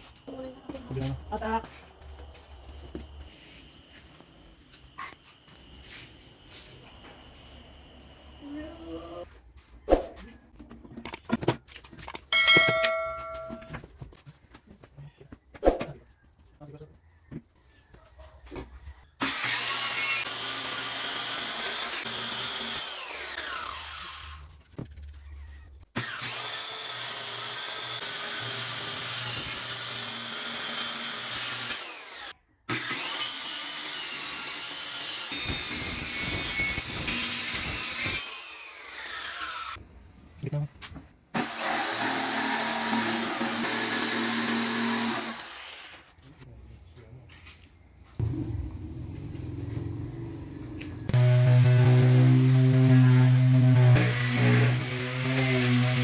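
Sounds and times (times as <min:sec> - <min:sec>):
electric saw cutting wood: 0:19.2 - 0:24.5, 0:26.0 - 0:39.8, 0:41.4 - 0:46.1, 0:48.2 - 0:56.0.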